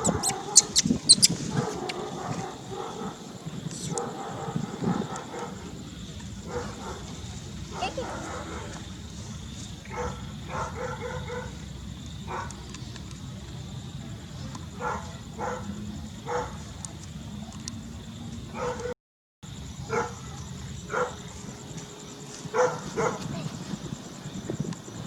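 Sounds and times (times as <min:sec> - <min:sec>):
animal short pitched calls: 0:00.0 - 0:02.1
steady low hum: 0:00.0 - 0:10.8.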